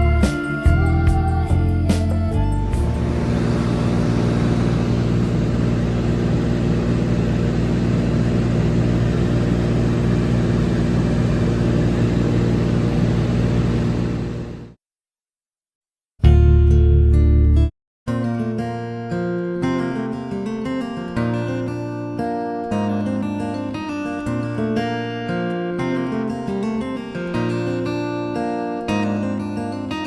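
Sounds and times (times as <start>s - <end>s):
propeller plane engine droning: 2.6s - 14.8s.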